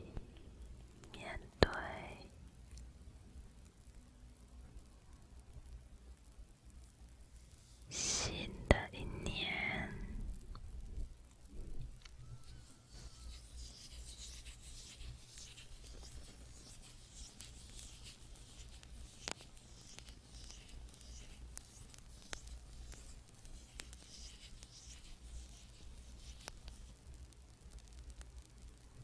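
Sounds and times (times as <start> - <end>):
faint sharp clicks: 2.7 - 2.9.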